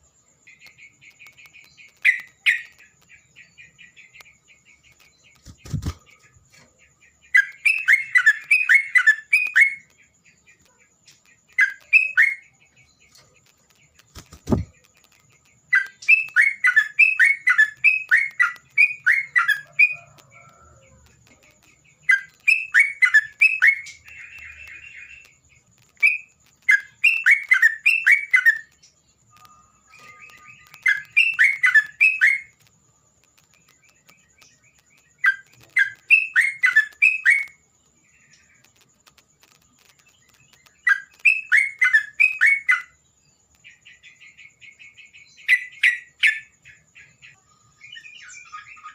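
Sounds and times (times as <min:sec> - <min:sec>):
songbird whistling: 0:07.3 - 0:09.9, 0:11.5 - 0:12.6, 0:15.7 - 0:20.6, 0:22.0 - 0:25.3, 0:26.0 - 0:28.7, 0:29.3 - 0:32.6, 0:35.2 - 0:37.6, 0:40.8 - 0:43.0.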